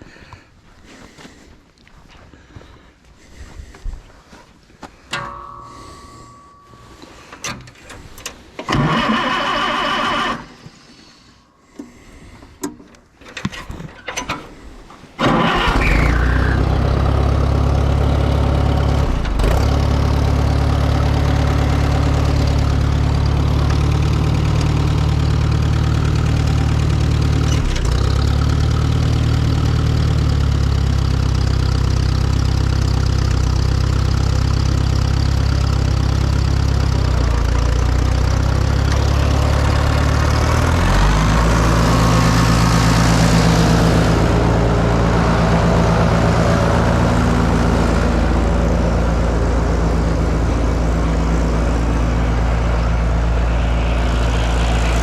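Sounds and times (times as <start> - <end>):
engine cranking: 7.3 - 10.6, 12.7 - 34.2
engine idling: 14.4 - 55.0.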